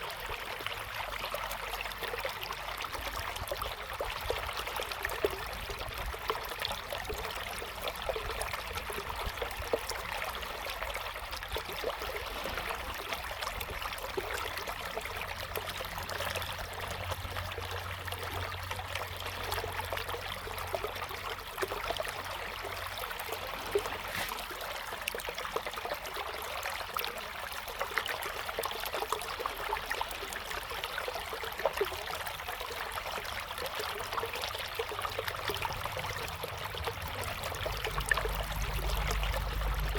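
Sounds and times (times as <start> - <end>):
river water rushing: 11.6 - 25.6, 34.0 - 39.9.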